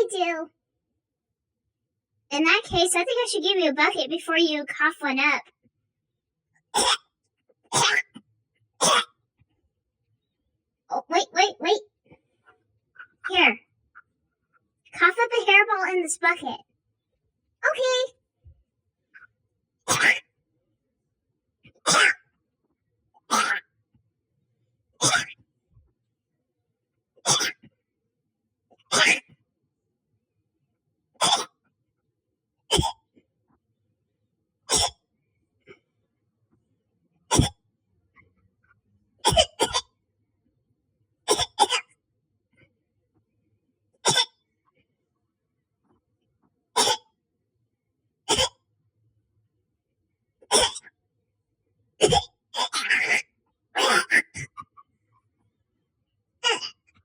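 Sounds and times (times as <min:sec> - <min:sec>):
harsh hacking coughs: 0:06.8 - 0:07.1, 0:07.7 - 0:08.2, 0:08.8 - 0:09.1, 0:19.9 - 0:20.2, 0:21.8 - 0:22.2, 0:23.3 - 0:23.6, 0:25.0 - 0:25.4, 0:27.3 - 0:27.6, 0:28.9 - 0:29.2, 0:31.2 - 0:31.5, 0:32.7 - 0:33.0, 0:34.7 - 0:35.0, 0:37.3 - 0:37.6, 0:39.2 - 0:39.9, 0:41.3 - 0:41.8, 0:44.0 - 0:44.3, 0:46.8 - 0:47.0, 0:48.3 - 0:48.6, 0:50.5 - 0:50.9, 0:52.0 - 0:53.1, 0:53.8 - 0:54.7.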